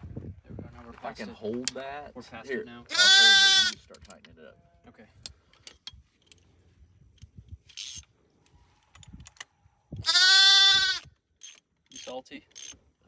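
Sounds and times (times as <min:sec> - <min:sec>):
lamb bleating: 0:02.9 - 0:03.8, 0:10.1 - 0:11.0
ratchet wrench clicking: 0:07.7 - 0:08.0, 0:11.0 - 0:12.8.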